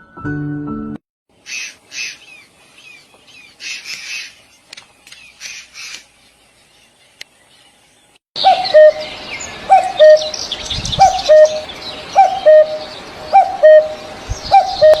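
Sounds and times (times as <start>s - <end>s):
bird squawking: 1.4s - 4.4s, 5.2s - 6.1s, 8.4s - 15.0s.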